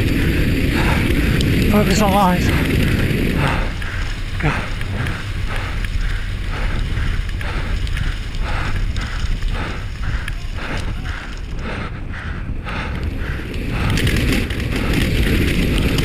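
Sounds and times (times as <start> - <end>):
mountain bike rumbling and rattling: 0.0 - 16.0
person breathing hard: 0.0 - 16.0
wind buffeting microphone: 0.0 - 16.0
person speaking: 1.7 - 2.6.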